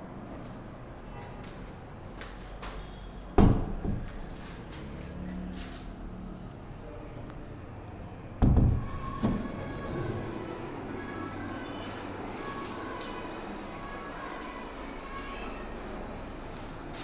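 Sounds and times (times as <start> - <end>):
loud heavy thumps: 8.4 - 10.2.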